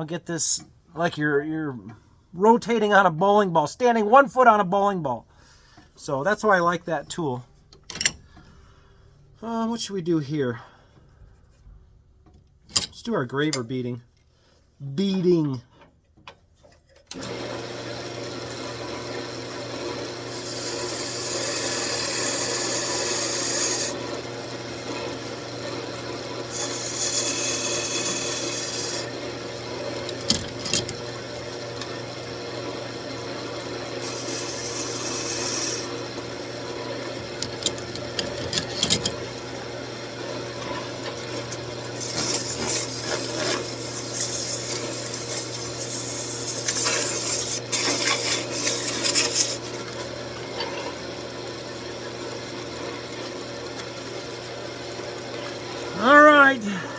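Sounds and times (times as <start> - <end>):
lathe motor hum: 17.2 - 44.9
tool cutting spinning wood: 17.2 - 50.0.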